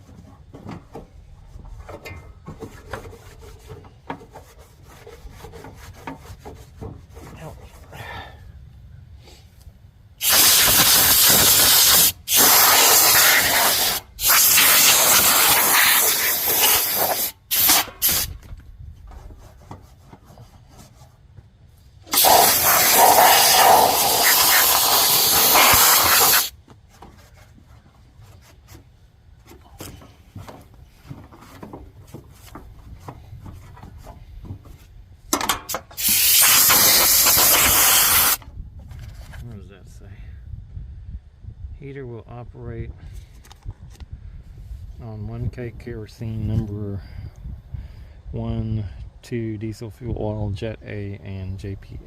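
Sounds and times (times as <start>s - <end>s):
compressed air hissing blasts: 10.2s - 18.4s, 22.1s - 26.5s, 35.7s - 38.4s.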